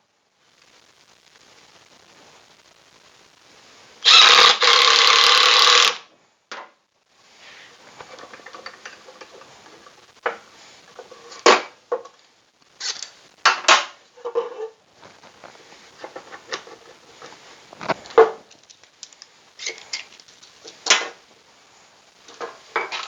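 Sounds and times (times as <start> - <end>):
power drill running: 4.0 - 6.0.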